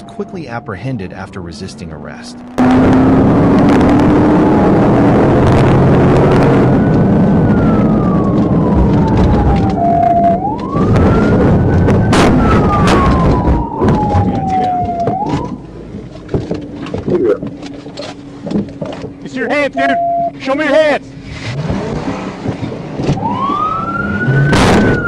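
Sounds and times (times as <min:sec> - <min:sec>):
police siren wailing: 0:00.0 - 0:15.7, 0:19.5 - 0:20.9, 0:23.1 - 0:25.0
engine and road noise: 0:00.0 - 0:25.0.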